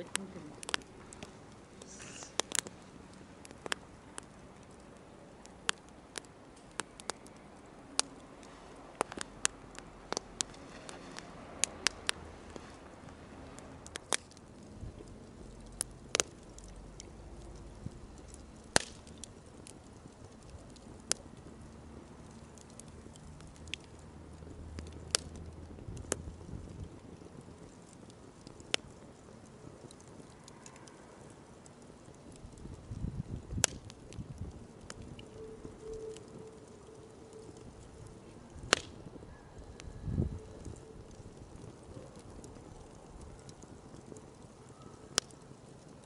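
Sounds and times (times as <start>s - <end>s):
campfire crackling: 0.0s - 46.0s
fire popping and snapping: 0.0s - 46.0s.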